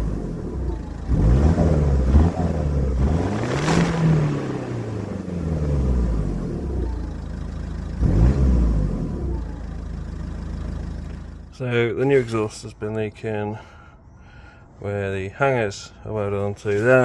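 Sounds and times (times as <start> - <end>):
diesel engine revving: 0.0 - 12.6.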